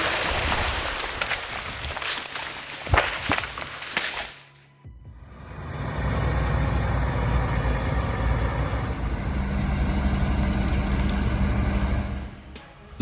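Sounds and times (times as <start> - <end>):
diesel engine running: 5.0 - 12.6.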